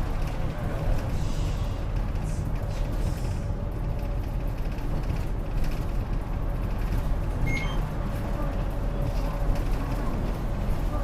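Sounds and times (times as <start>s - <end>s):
bus engine and road rumble: 0.0s - 11.0s
short high beep: 7.5s - 7.8s.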